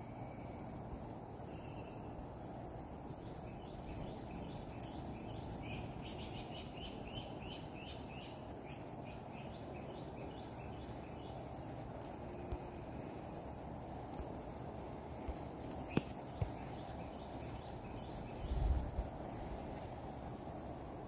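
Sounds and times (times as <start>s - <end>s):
outdoor background hiss: 0.0s - 21.0s
bird chirping: 1.4s - 2.4s, 3.1s - 13.0s, 15.6s - 19.9s
faint clicks: 14.1s - 14.5s, 15.3s - 16.6s.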